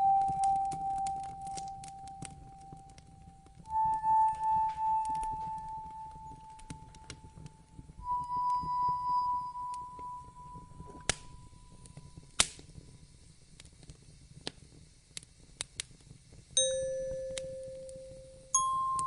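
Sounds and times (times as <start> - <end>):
wood fire crackling: 0.0 - 19.0
bell-like chime notes: 3.7 - 7.0, 8.0 - 11.5, 16.6 - 19.0.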